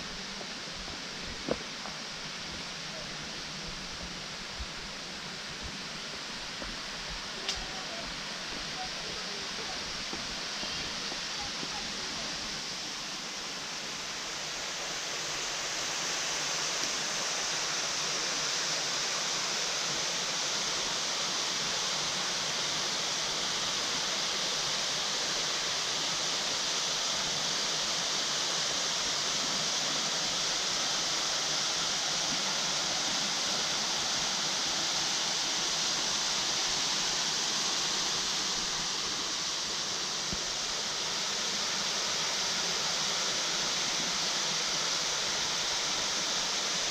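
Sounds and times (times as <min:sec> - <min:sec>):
waterfall rushing and splashing: 0:00.0 - 0:46.9.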